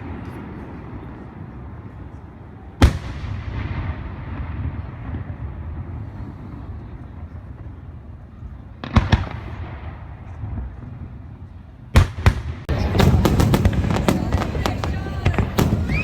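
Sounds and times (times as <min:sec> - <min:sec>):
distant firework explosions: 0:00.0 - 0:16.0
sharp firework bangs: 0:02.8 - 0:06.0, 0:08.8 - 0:10.8, 0:11.9 - 0:16.0.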